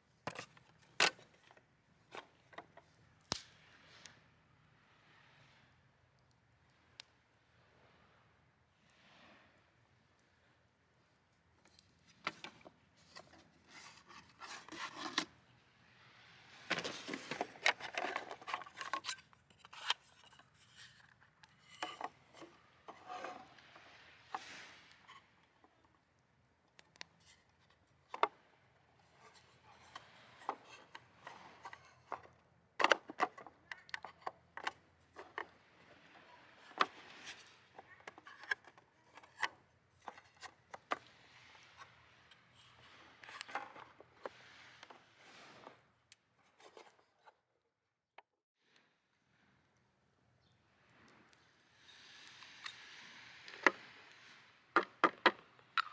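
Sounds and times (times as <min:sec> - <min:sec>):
rubbing and scraping handling noise: 0:00.0 - 0:03.0, 0:11.6 - 0:26.1, 0:26.8 - 0:47.5.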